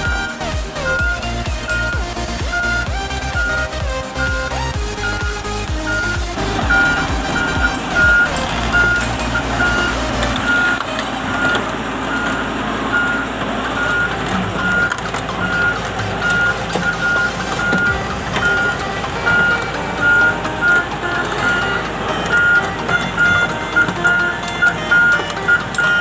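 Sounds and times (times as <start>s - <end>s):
crane engine running: 0.0s - 26.0s
crane travel alarm beeping: 0.0s - 26.0s
steel tracks rolling: 0.0s - 26.0s.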